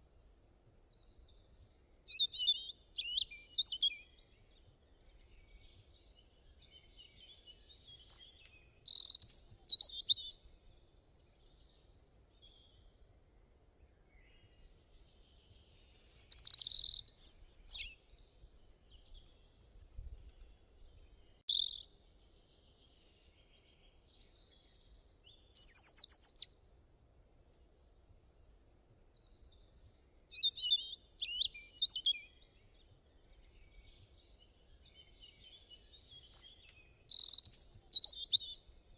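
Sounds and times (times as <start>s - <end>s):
birds singing and chirping: 2.1s - 4.2s, 5.0s - 12.4s, 14.8s - 19.3s, 20.0s - 21.8s, 25.2s - 26.5s, 29.6s - 38.9s.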